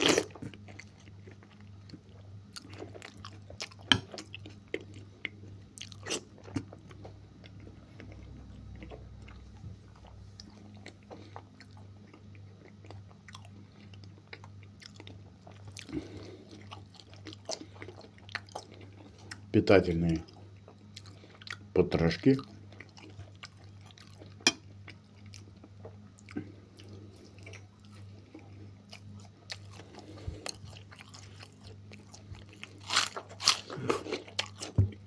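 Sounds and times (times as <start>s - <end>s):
wet chewing and mouth sounds: 0.0s - 19.5s, 20.1s - 21.7s, 22.3s - 35.0s
steady low hum: 0.0s - 35.0s.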